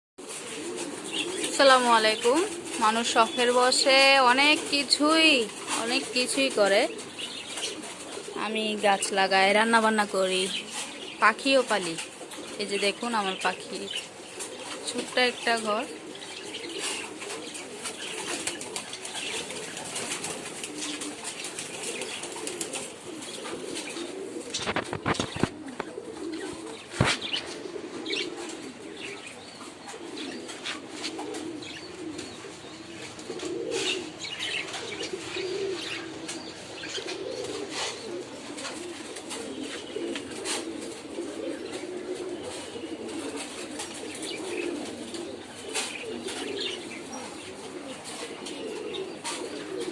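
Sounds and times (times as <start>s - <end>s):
pigeons cooing: 0.2s - 49.9s
wing flutters or knocks: 24.5s - 27.6s.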